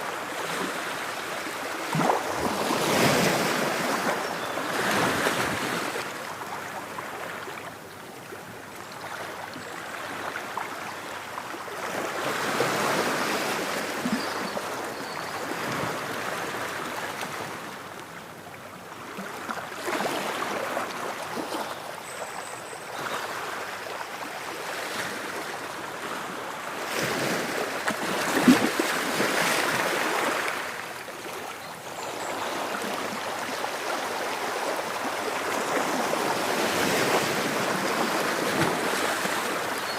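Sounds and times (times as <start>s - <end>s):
ocean waves breaking on shore: 0.0s - 7.8s, 18.9s - 21.9s, 23.0s - 39.9s.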